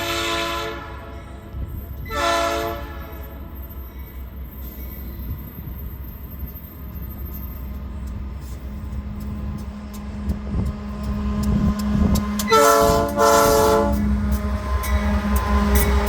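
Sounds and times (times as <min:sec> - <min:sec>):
locomotive horn blasts: 0:00.0 - 0:01.4, 0:02.1 - 0:03.4, 0:12.4 - 0:14.4
train rumble: 0:00.0 - 0:16.0.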